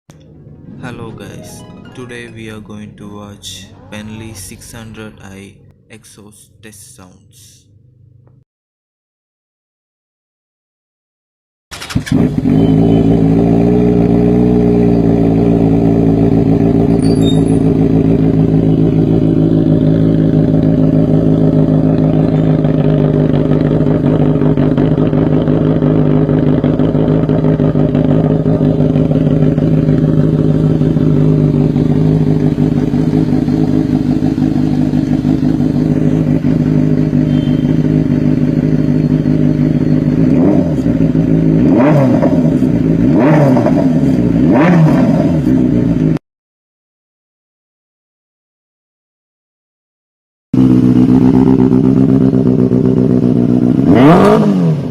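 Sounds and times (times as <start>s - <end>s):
motorcycle engine idling: 12.3s - 43.1s, 50.6s - 53.9s.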